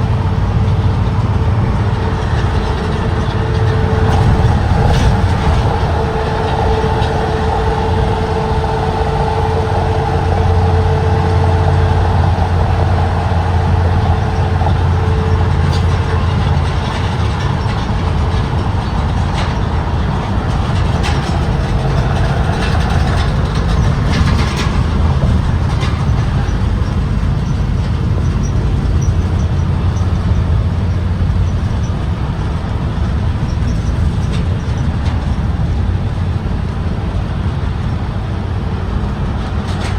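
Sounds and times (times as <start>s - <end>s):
whine: 0.0s - 29.6s
bus engine and road drone: 0.0s - 39.9s.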